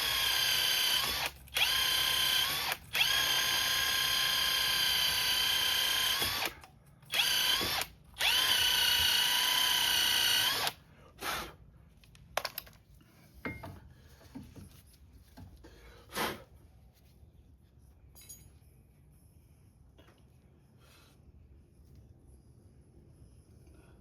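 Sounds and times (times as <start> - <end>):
power tool motor whirring: 0.0 - 10.8.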